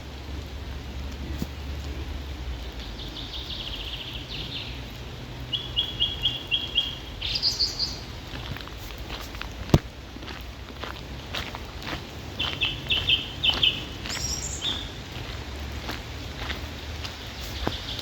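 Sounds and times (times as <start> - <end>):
songbird singing: 1.4 - 9.1, 11.9 - 18.0.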